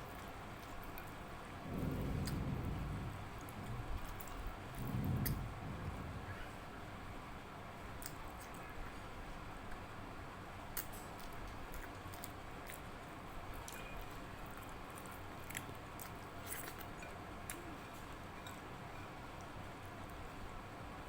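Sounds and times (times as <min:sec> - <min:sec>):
steady background hiss: 0:00.0 - 0:10.8.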